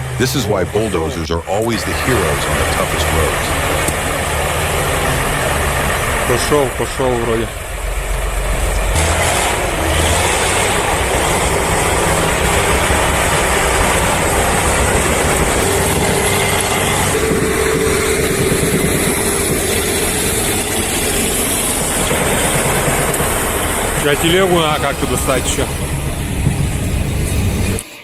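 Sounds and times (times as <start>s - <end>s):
heavy diesel engines under load: 0.0s - 28.0s
steady whine: 0.0s - 28.0s.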